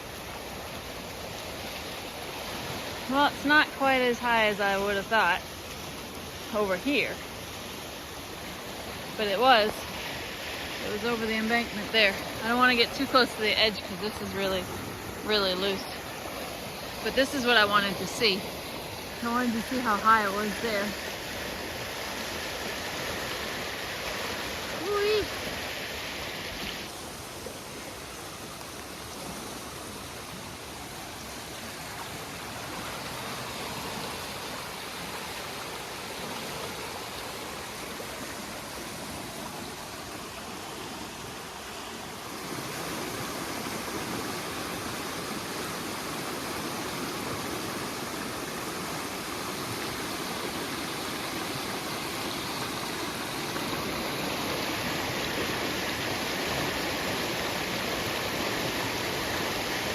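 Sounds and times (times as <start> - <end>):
creek water rushing: 0.0 - 59.9.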